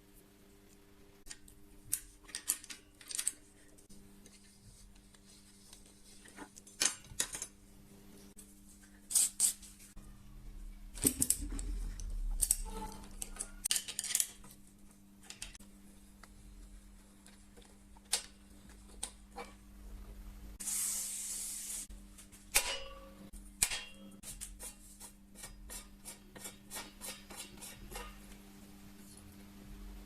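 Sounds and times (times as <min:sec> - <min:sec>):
aerosol spray hiss: 0:20.6 - 0:21.9.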